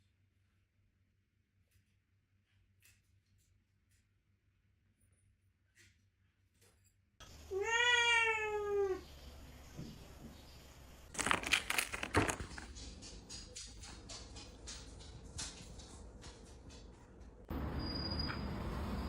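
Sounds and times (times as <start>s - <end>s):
cat meowing: 7.5s - 9.0s
rustling and knocking clatter: 11.1s - 17.5s.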